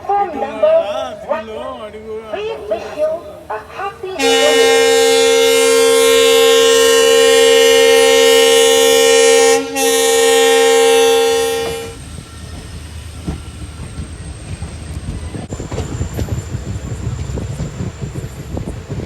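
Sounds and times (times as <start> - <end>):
train rumble: 0.0 - 19.0
locomotive horn blast: 4.1 - 12.0.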